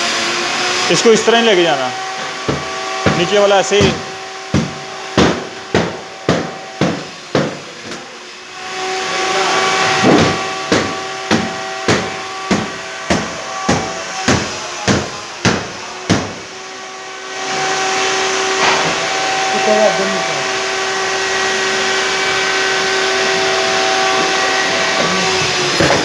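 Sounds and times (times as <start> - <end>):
hammer blows on wooden crate: 2.2 - 8.0, 10.0 - 16.5, 23.3 - 26.0.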